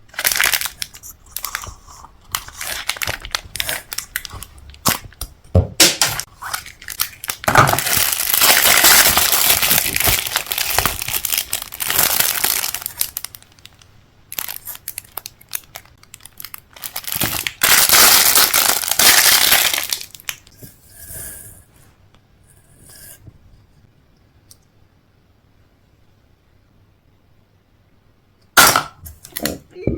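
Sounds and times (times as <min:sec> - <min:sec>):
food packaging crinkling and tearing: 0:00.1 - 0:05.3, 0:06.0 - 0:20.5.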